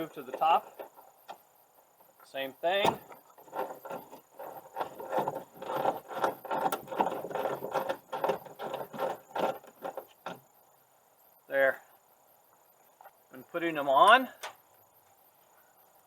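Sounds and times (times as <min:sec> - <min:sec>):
screw being backed out rattling: 0:00.0 - 0:01.5, 0:02.7 - 0:10.5.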